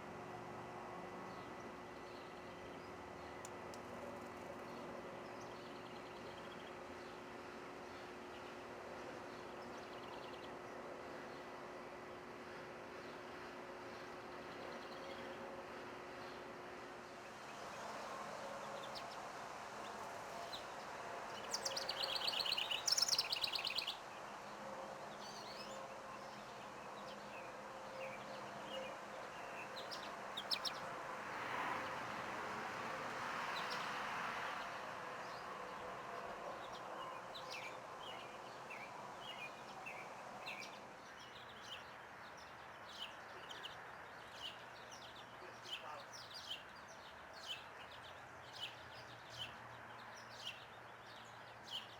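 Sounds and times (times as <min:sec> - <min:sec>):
songbird trilled song: 0:21.4 - 0:24.0.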